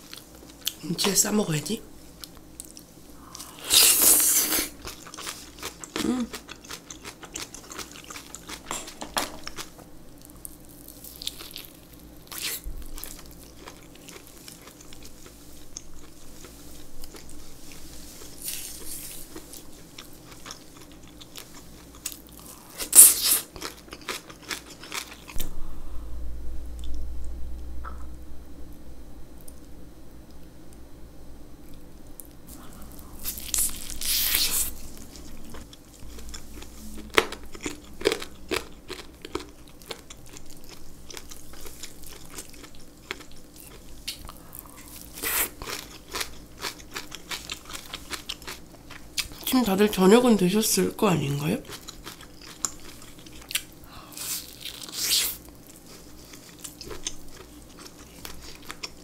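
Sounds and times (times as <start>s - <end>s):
wet chewing: 2.2s - 11.7s, 32.2s - 49.5s, 51.7s - 59.0s
crunchy bite: 21.9s - 25.5s, 32.5s - 49.4s.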